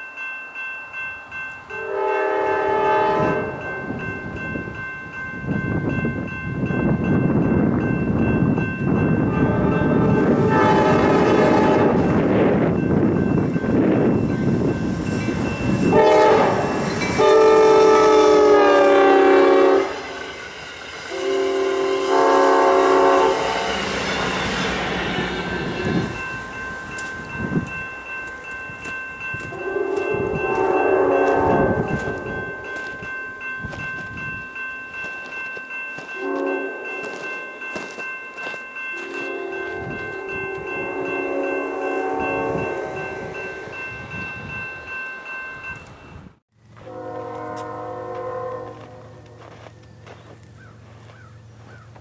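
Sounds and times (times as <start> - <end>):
train rumbling on rails: 0.6 - 52.0
train air horn blasts: 1.8 - 3.7, 9.3 - 12.3, 15.8 - 20.4, 21.0 - 26.2, 29.5 - 32.2, 36.2 - 37.0, 39.0 - 43.3, 46.8 - 49.8.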